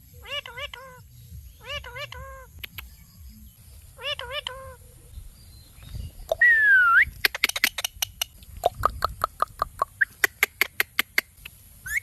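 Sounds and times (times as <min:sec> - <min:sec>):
parrot clicking and chirping: 0:07.1 - 0:11.6.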